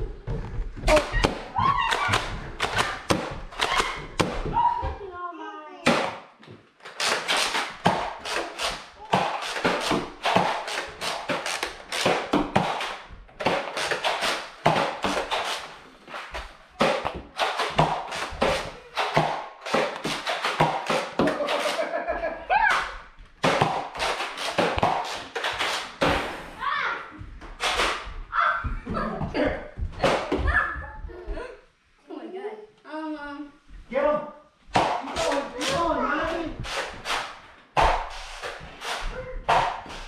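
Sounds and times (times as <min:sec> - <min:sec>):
sharp clacks and thuds: 0:00.0 - 0:05.0, 0:05.9 - 0:21.9, 0:22.6 - 0:26.5, 0:27.1 - 0:31.2, 0:34.7 - 0:40.0.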